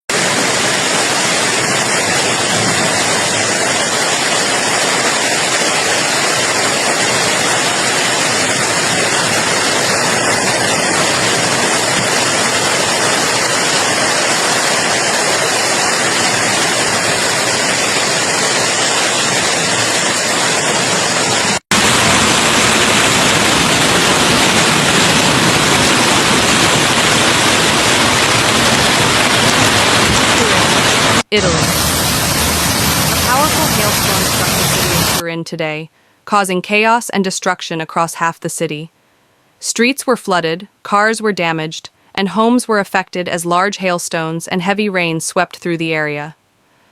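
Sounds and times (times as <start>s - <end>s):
rain and hail falling: 0.1s - 35.2s.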